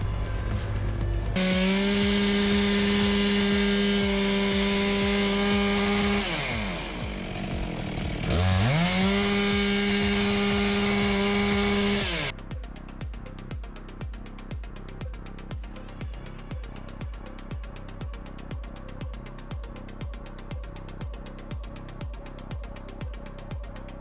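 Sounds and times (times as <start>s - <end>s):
faint music with steady beat: 0.0s - 24.0s
chainsaw at full throttle: 1.4s - 12.3s.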